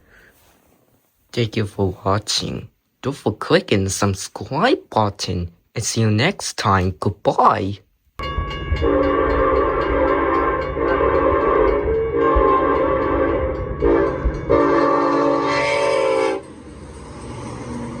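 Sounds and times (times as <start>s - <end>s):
train running rumble: 8.2s - 18.0s
multi-tone train horn blasts: 8.6s - 16.6s.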